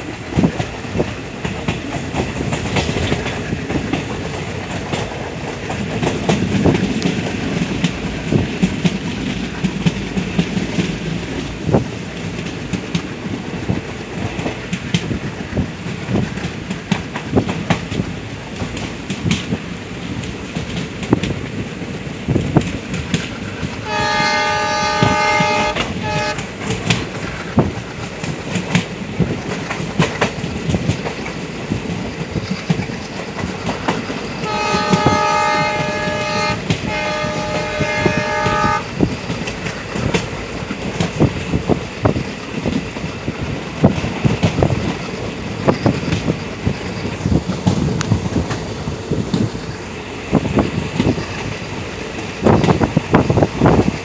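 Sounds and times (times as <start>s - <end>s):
train wheels clattering over rails: 0.0s - 54.0s
locomotive horn: 23.8s - 26.8s, 34.4s - 39.0s.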